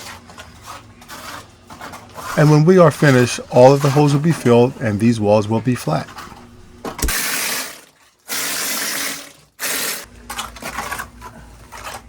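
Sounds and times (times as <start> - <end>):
cement sprayer hissing: 2.4 - 7.4.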